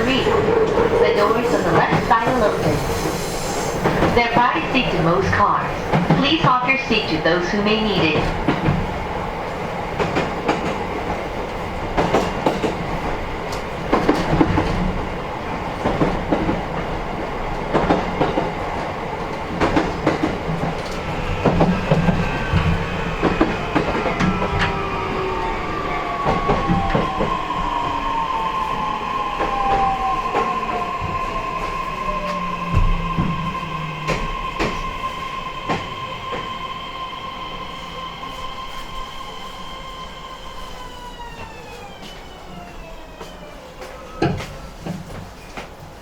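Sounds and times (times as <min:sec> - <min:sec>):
traction motor whine: 0:21.4 - 0:37.7.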